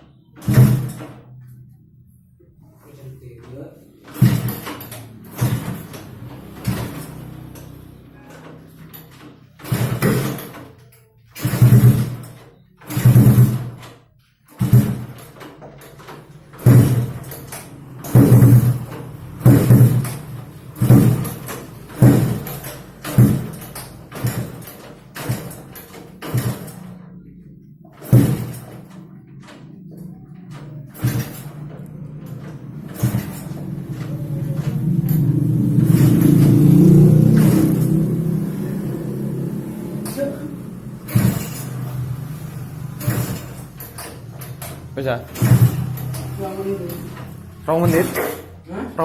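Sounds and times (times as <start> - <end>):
engine revving: 4.1 - 8.2, 29.8 - 49.0.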